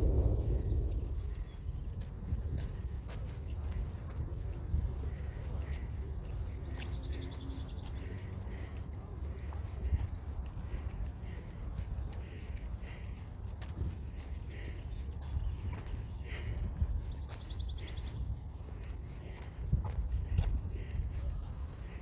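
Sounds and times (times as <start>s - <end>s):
wind rumble on microphone: 0.0s - 7.1s, 13.7s - 22.0s
footsteps on a trail: 0.0s - 22.0s
light clicking or jingling: 0.0s - 22.0s.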